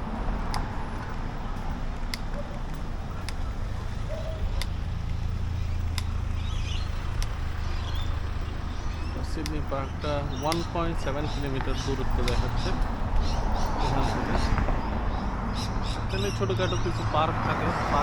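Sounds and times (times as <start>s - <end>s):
street traffic rumble: 0.0s - 18.0s
sharp ticks: 1.9s - 13.8s.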